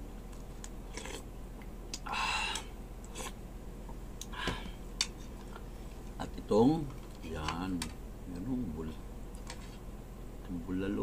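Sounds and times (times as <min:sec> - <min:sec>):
man chewing: 0:00.3 - 0:01.3, 0:01.9 - 0:03.4.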